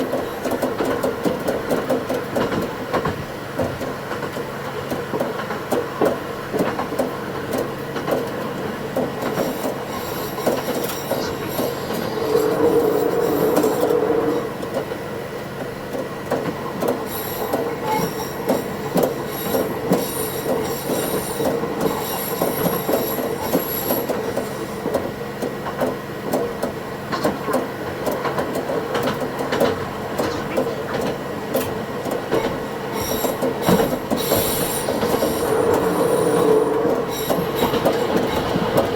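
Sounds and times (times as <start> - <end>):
railcar running tone: 0.0 - 38.9
wheels clattering over rail joints: 0.0 - 38.9
high wheel squeals: 9.3 - 14.6, 17.0 - 24.9, 32.3 - 38.9.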